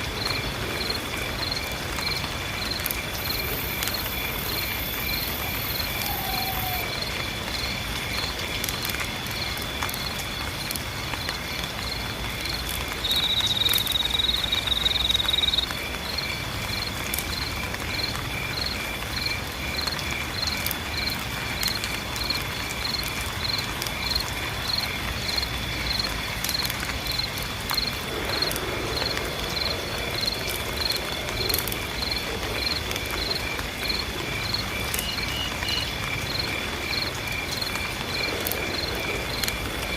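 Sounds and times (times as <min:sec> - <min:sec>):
crickets chirping: 0:00.0 - 0:39.9
rain hiss: 0:00.0 - 0:39.9.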